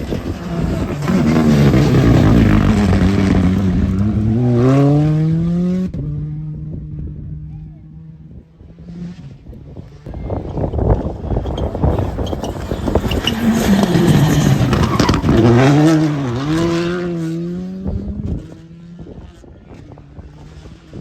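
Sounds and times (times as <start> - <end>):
exhaust crackling: 0.0 - 5.2, 10.1 - 18.4
rally car passing at speed: 0.0 - 6.6, 10.5 - 21.0.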